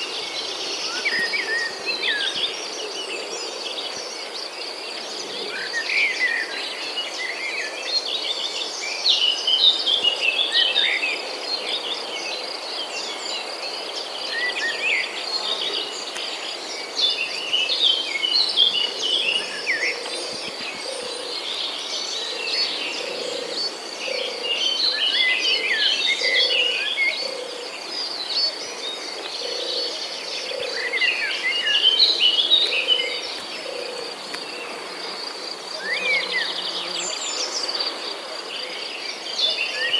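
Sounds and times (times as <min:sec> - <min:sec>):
birds singing and chirping: 0:00.0 - 0:39.9.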